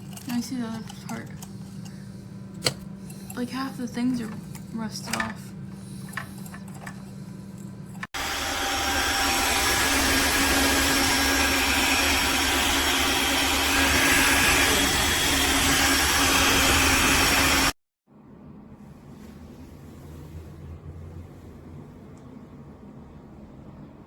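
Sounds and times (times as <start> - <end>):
vacuum motor whining: 8.2 - 17.8.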